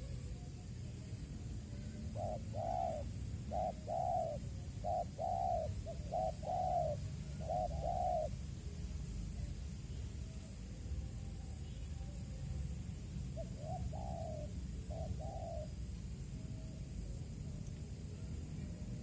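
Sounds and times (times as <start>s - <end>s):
dove cooing: 0.0s - 8.4s, 13.2s - 17.4s.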